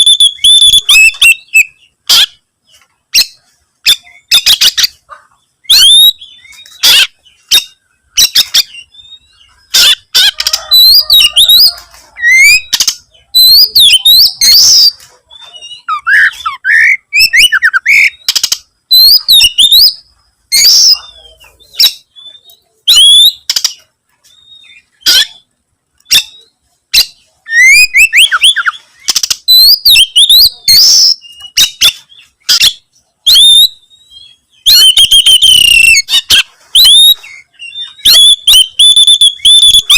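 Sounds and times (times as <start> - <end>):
bird singing whistled notes: 0.0 - 2.4, 5.6 - 25.4, 26.0 - 39.9
sharp bird clicks: 9.8 - 13.1, 17.2 - 19.9, 21.8 - 23.9, 27.0 - 30.0.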